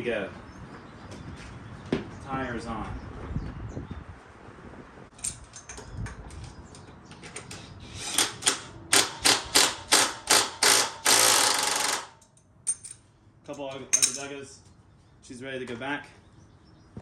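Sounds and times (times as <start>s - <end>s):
ratchet wrench clicking: 8.0s - 12.8s.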